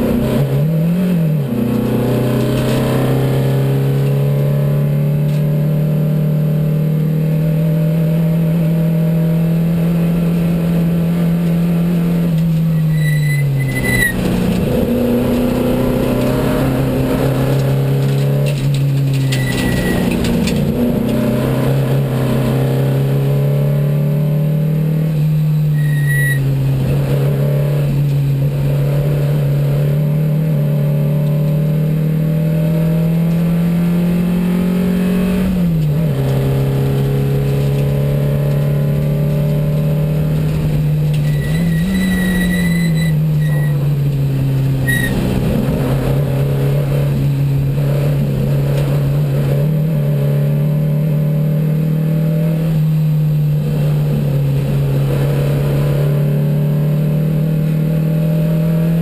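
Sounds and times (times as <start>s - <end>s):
short high squeals: 12.7s - 14.2s, 19.2s - 20.2s, 25.5s - 26.4s, 41.2s - 43.9s, 44.8s - 45.2s
race car engine running hard: 26.4s - 59.0s.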